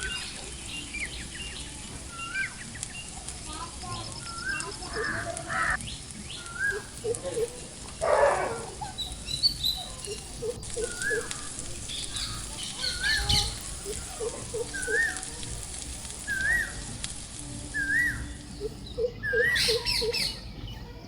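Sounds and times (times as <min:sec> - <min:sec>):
high bird chirps: 0:00.0 - 0:20.8
bird whistle rising and falling: 0:10.8 - 0:15.3, 0:16.2 - 0:17.0, 0:17.7 - 0:20.4.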